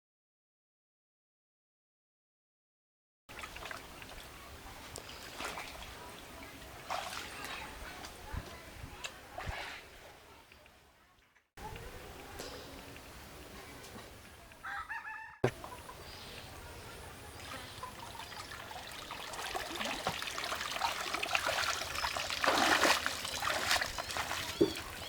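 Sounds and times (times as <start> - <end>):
rooster crowing: 14.6 - 15.5.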